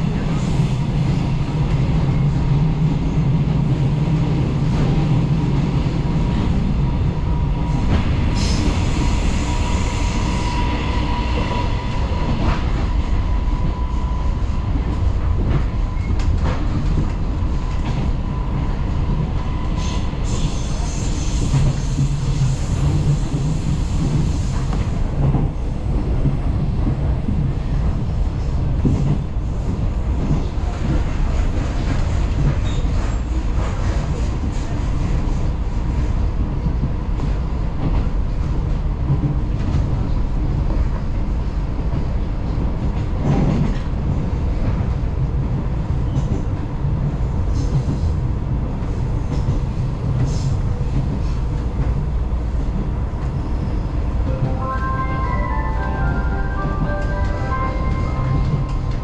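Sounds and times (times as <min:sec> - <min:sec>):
train rumbling along track: 0:00.0 - 0:59.0
thin high tone: 0:54.3 - 0:59.0.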